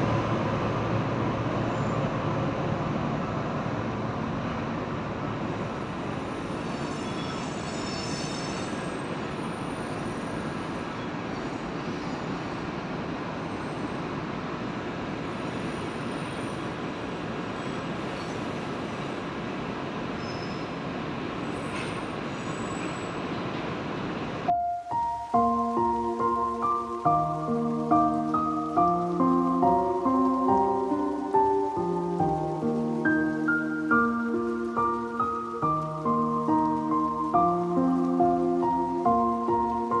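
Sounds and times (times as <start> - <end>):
train wheels rumbling: 0.0 - 40.0
high-pitched wheel squeals: 6.5 - 10.3.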